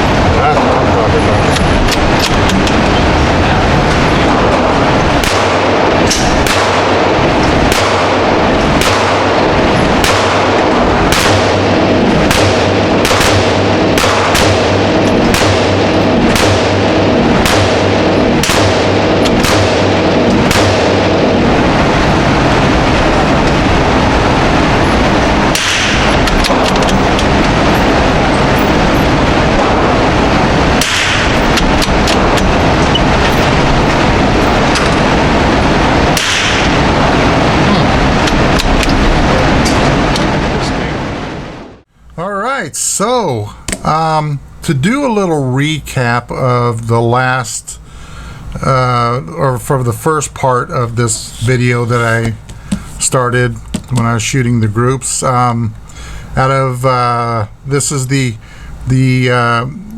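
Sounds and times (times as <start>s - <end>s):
rapid gunshots: 0.0s - 41.2s
loud background noise: 0.0s - 59.9s.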